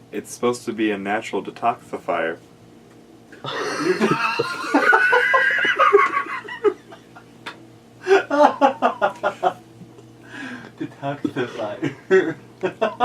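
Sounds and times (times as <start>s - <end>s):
people laughing: 3.4s - 7.2s, 8.0s - 9.6s, 10.8s - 13.0s.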